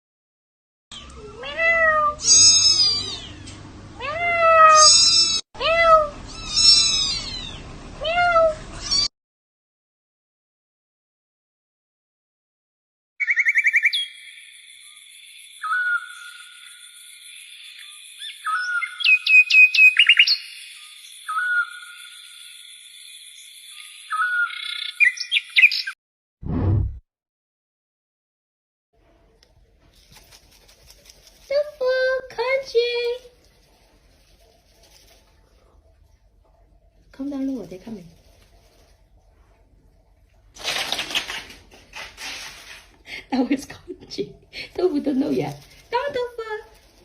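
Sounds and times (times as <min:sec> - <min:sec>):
cat meowing: 0:01.2 - 0:09.1
bird chirping: 0:13.2 - 0:26.0.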